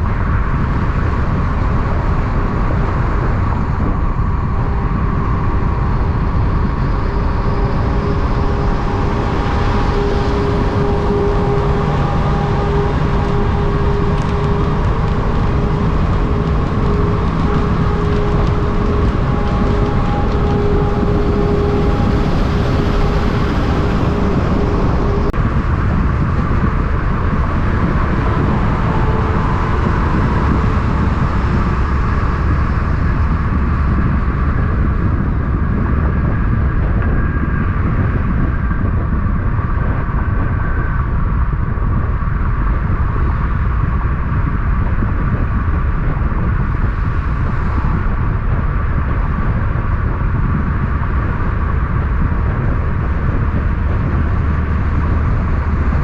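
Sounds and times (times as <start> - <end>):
road traffic rumble: 0.0 - 56.0
steady tone: 3.8 - 33.9.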